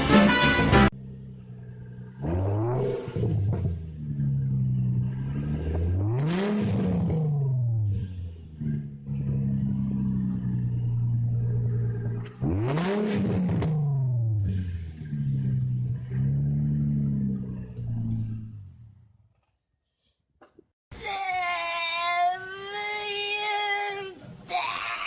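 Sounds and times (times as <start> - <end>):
engine throttle blips: 0.0 - 19.2
sports car exhaust idling: 0.9 - 18.8.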